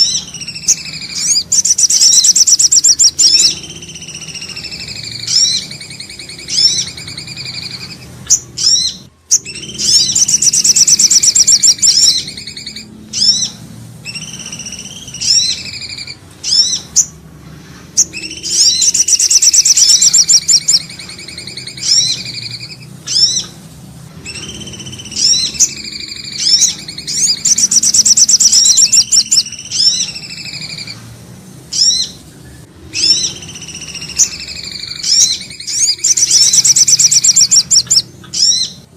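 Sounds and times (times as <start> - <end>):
falling whistled bird phrases: 0.0 - 17.1, 18.0 - 23.5, 24.2 - 31.0, 32.9 - 38.9
loud rapid high bird trill: 0.0 - 38.9.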